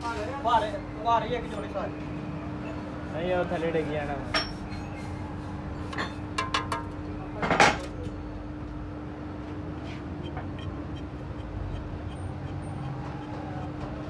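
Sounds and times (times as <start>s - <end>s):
workshop hum: 0.0s - 8.9s
metal clank: 5.9s - 8.1s.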